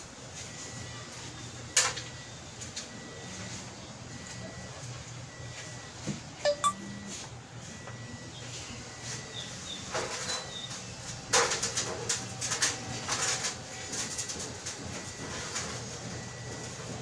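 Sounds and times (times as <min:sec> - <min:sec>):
short high chirps: 0:06.5 - 0:06.8.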